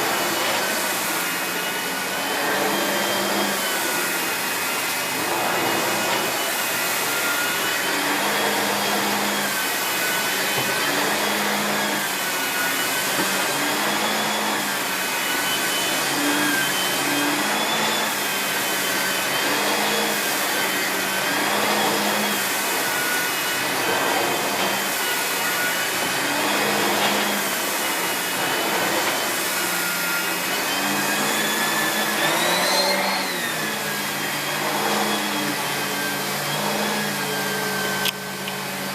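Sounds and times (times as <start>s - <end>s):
vacuum cleaner motor whine: 0.0s - 38.9s.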